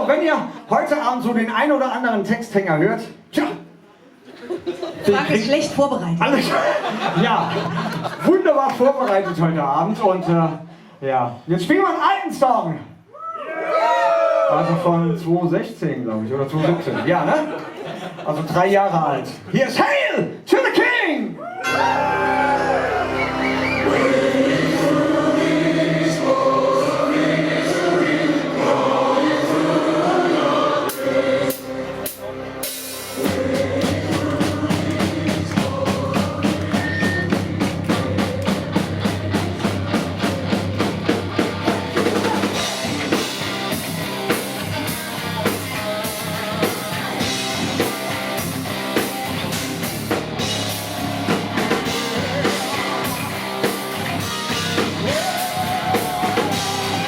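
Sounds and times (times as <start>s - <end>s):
choir-like singing: 21.6s - 43.4s, 51.5s - 57.0s
heavy metal band playing: 21.6s - 57.0s
fast drum beat: 30.9s - 57.0s.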